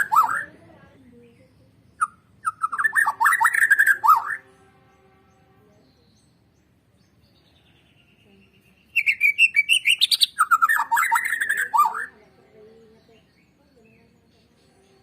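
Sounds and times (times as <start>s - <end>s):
bird singing varied whistled phrases: 0.0s - 0.5s, 1.9s - 4.4s, 8.5s - 12.2s.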